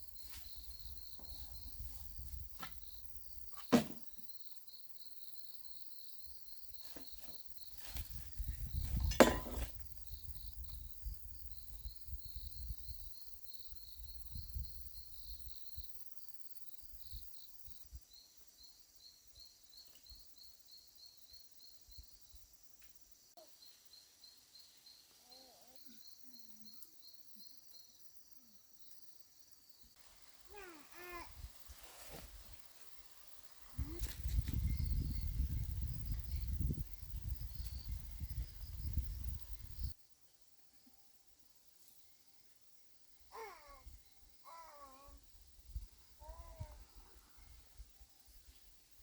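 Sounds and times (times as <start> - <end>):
insects trilling: 0.0 - 49.0
knocks: 9.0 - 9.7.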